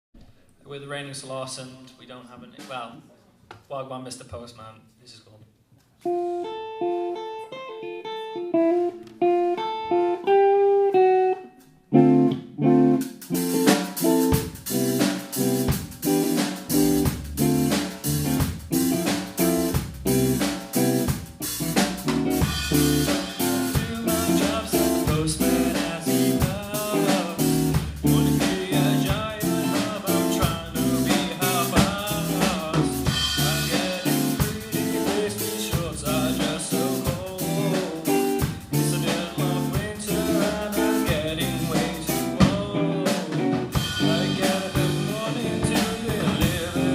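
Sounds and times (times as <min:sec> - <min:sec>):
guitar chords: 0:06.0 - 0:46.9
bass line: 0:12.0 - 0:46.9
drum kit beat: 0:12.8 - 0:46.9.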